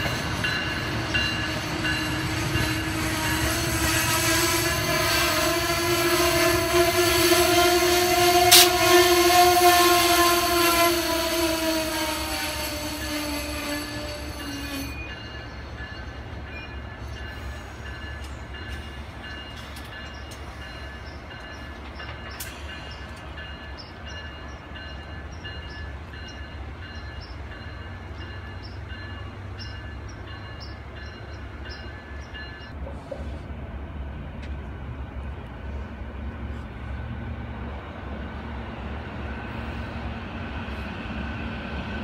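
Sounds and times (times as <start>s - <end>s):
steel wheels rumbling on rail: 0.0s - 42.0s
locomotive horn: 1.4s - 15.1s
faint high wheel squeal: 11.6s - 18.2s.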